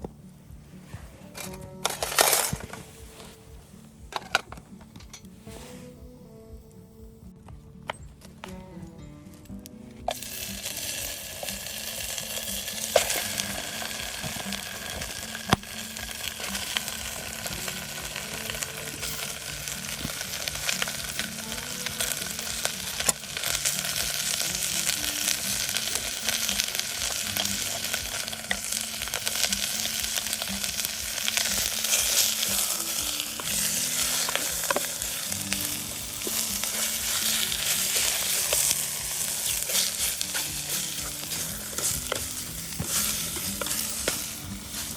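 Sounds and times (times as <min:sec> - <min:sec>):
soft background music: 0:00.0 - 0:44.9
food sizzling in a pan: 0:09.5 - 0:44.9.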